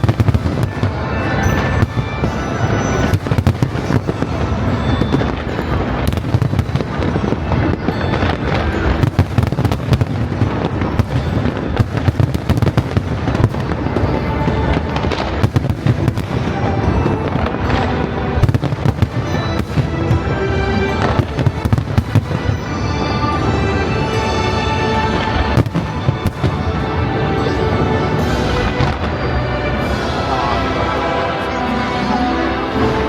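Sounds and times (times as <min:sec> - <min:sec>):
fireworks bangs and crackles: 0:00.0 - 0:31.8
music: 0:00.0 - 0:33.0.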